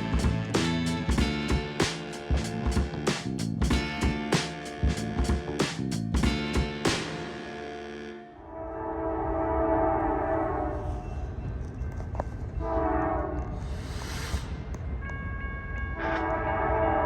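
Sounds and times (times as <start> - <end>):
locomotive horn blasts: 0.0 - 10.9, 12.6 - 13.5, 15.6 - 17.0
low rumble of train: 8.4 - 17.0.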